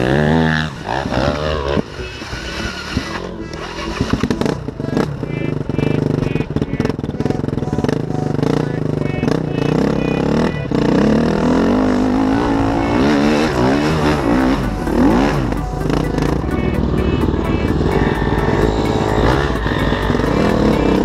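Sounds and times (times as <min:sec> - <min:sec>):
dirt bike engine revving: 0:00.0 - 0:21.0
music playing: 0:00.0 - 0:21.0.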